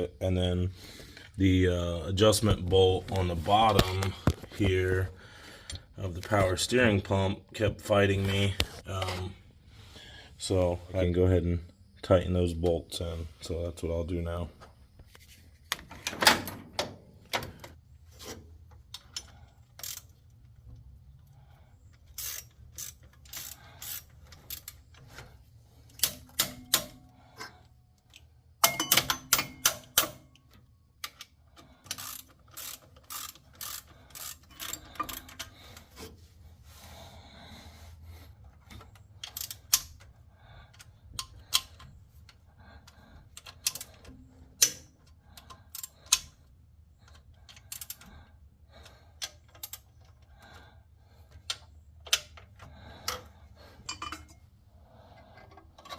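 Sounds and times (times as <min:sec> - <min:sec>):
ratchet wrench clicking: 0:18.9 - 0:20.4, 0:22.0 - 0:24.9, 0:28.1 - 0:35.9, 0:38.8 - 0:46.5, 0:47.1 - 0:48.1, 0:48.8 - 0:50.5
metal clinks: 0:28.6 - 0:30.3, 0:53.8 - 0:54.4.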